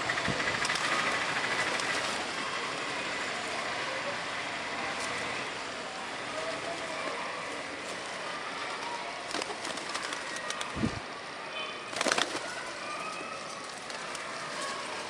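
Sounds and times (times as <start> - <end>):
loud sharp flurry of wings: 0.0 - 2.3, 8.8 - 11.1, 11.8 - 15.0
bird calls and clicks: 11.9 - 15.0.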